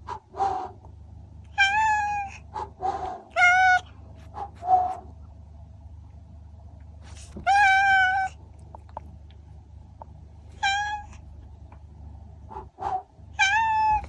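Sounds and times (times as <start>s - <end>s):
cat meowing: 1.5s - 2.4s, 3.3s - 3.9s, 7.2s - 8.4s, 10.6s - 11.2s, 13.3s - 14.0s.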